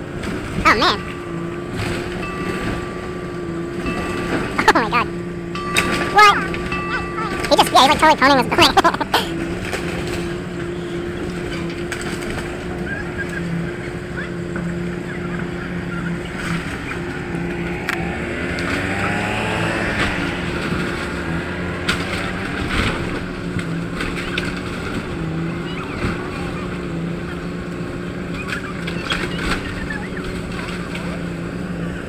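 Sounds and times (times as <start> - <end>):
heavy machine engine drone: 0.0 - 32.0
gliding tones: 0.4 - 28.3.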